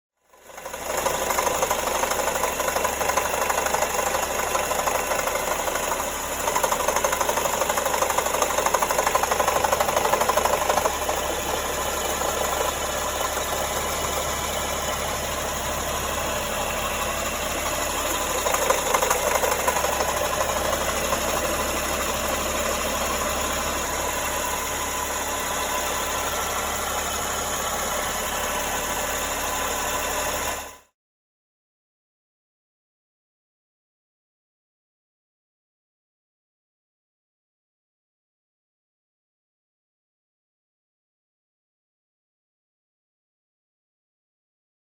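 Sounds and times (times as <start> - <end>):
car engine running: 0.3 - 30.9.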